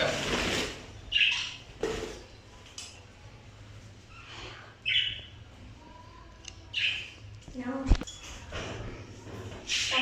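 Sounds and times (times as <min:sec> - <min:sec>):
parrots squawking: 0:00.0 - 0:01.7.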